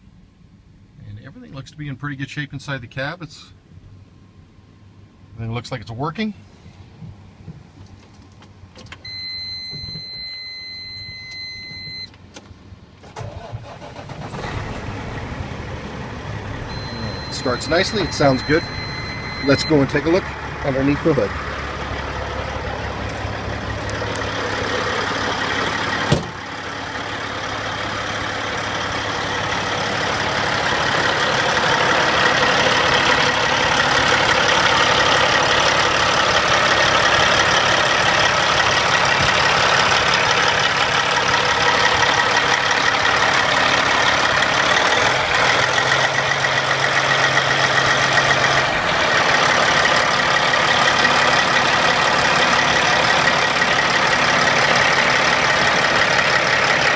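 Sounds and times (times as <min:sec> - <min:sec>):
diesel truck engine idling: 0:12.7 - 0:56.9.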